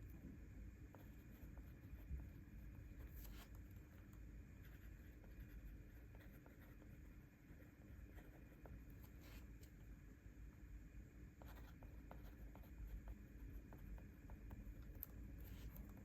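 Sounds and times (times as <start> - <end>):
pen scratching on paper: 0.9 - 9.5, 11.4 - 16.0.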